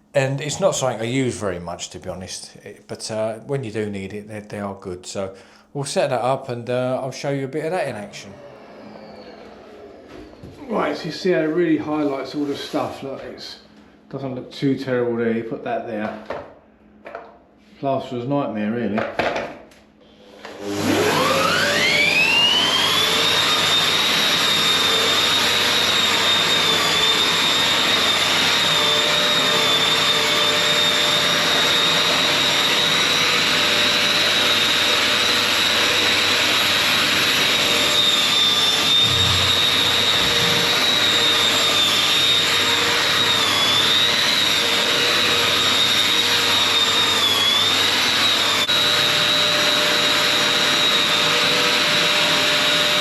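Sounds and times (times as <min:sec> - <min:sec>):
drywall sander motor whine: 0:07.9 - 0:13.4, 0:20.1 - 0:53.0
dust extractor air rush: 0:20.2 - 0:53.0.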